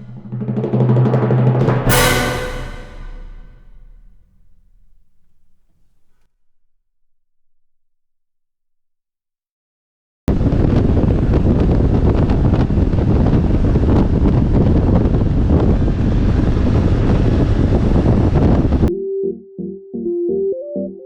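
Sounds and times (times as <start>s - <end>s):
wind noise on microphone: 10.3s - 18.9s.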